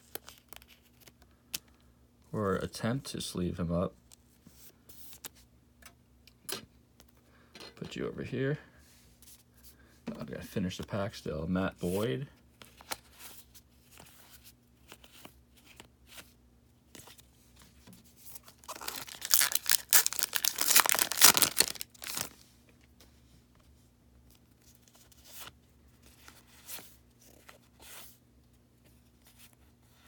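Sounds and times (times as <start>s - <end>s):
cards rustling and ticking: 0.0s - 1.8s, 13.8s - 16.3s, 18.3s - 22.4s
foil wrapper tearing and crinkling: 18.4s - 22.4s.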